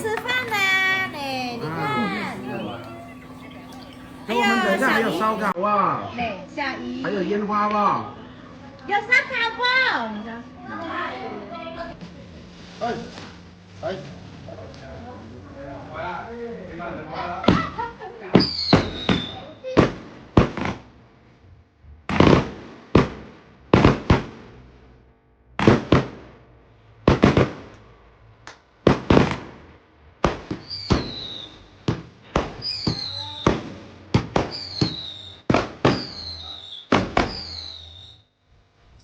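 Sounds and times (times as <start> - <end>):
firework whistles falling in pitch: 30.6 - 31.6, 32.6 - 33.5, 34.5 - 38.2.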